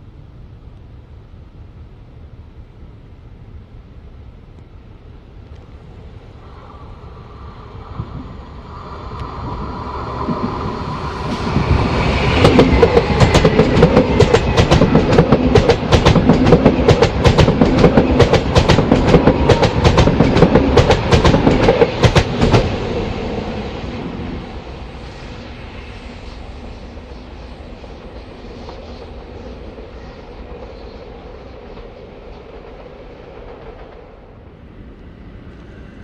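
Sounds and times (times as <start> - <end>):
train wheels clattering on rails: 9.1 - 23.1, 28.2 - 34.4.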